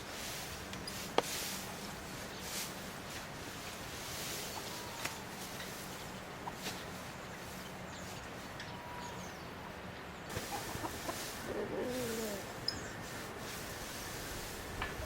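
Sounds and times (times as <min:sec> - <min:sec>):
background hiss: 0:00.0 - 0:15.0
chicken wavering call: 0:10.4 - 0:12.5.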